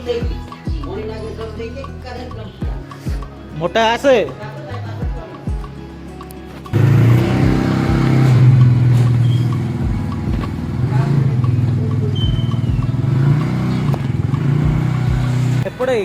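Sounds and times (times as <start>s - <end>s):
vehicle engine idling: 6.6s - 16.0s.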